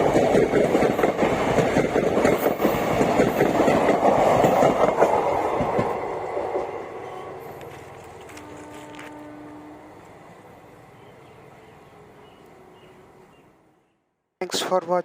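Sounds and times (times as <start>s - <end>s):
train wheels clattering over rail joints: 0.0s - 6.0s.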